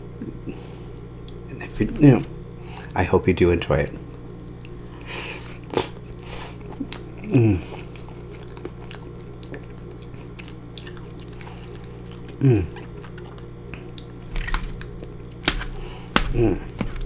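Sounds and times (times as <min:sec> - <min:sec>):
chewing with wet mouth clicks: 0:04.1 - 0:15.5.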